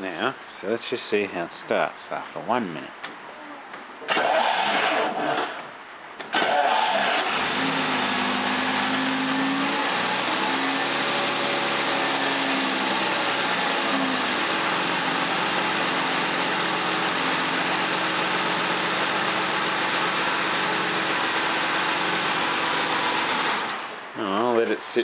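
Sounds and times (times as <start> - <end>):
car engine idling: 6.4 - 24.1.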